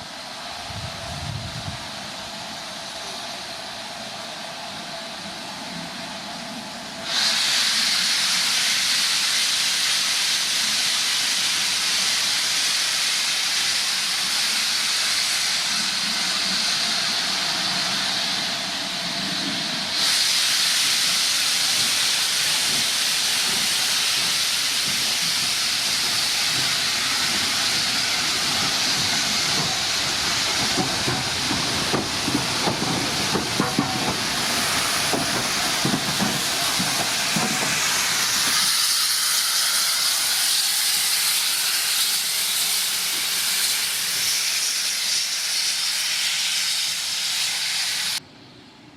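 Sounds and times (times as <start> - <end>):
steam locomotive venting steam: 0.0 - 48.2.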